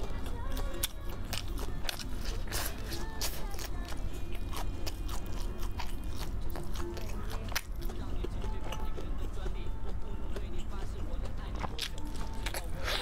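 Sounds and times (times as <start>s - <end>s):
crunchy chicken being chewed: 0.0s - 13.0s.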